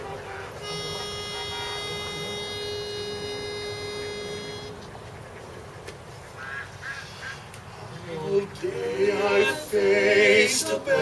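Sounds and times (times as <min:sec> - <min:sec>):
pitch pipe note: 0:00.0 - 0:04.8.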